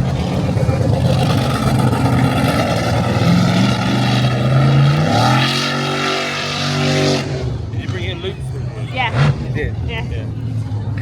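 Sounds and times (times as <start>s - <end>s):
loud engine revving: 0.0s - 8.1s, 9.0s - 9.6s.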